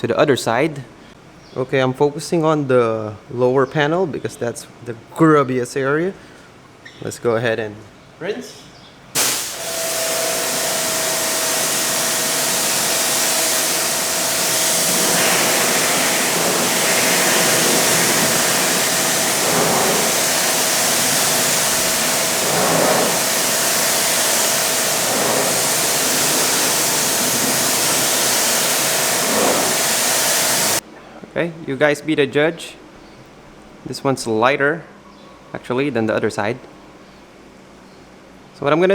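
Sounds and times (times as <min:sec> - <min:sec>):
machine whine: 0:09.2 - 0:30.8
pressure washer jet hissing: 0:09.2 - 0:30.8.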